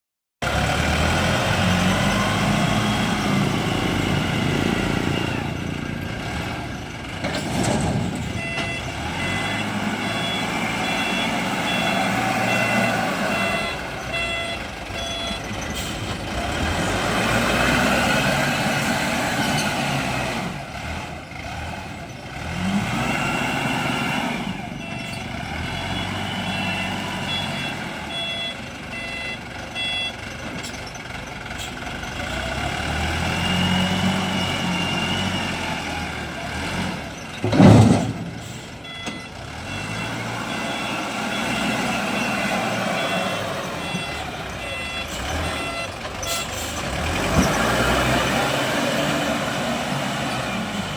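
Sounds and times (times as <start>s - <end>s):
diesel engine revving: 0.4s - 50.9s
reversing alarm beeps: 8.2s - 16.0s, 24.8s - 30.8s, 37.4s - 46.5s.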